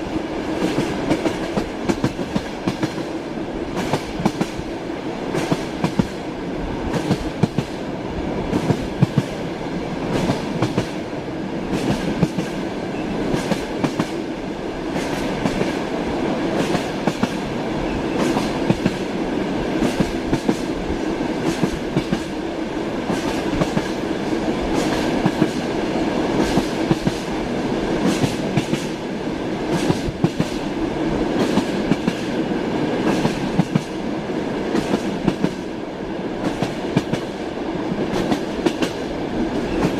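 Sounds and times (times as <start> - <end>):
train rolling rumble: 0.0 - 39.9.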